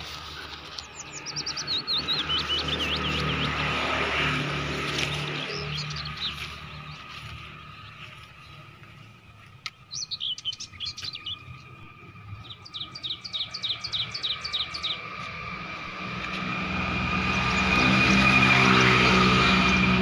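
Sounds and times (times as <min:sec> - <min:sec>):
small bird chirping: 0:00.0 - 0:03.7, 0:09.7 - 0:15.3.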